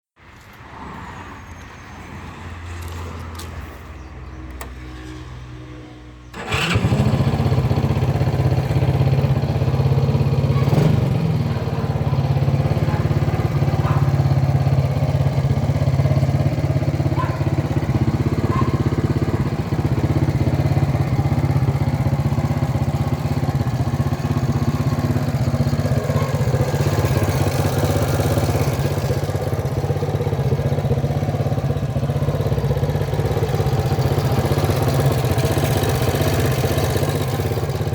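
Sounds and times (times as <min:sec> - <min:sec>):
motorcycle engine starting and running: 0:02.8 - 0:37.9.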